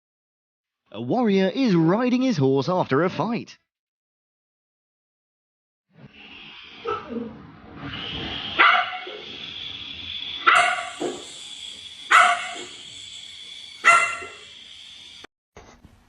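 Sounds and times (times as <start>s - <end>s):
dog barking: 6.8s - 7.2s, 8.6s - 9.2s, 10.4s - 11.4s, 12.0s - 13.1s, 13.7s - 14.6s
steady background hiss: 8.1s - 15.3s.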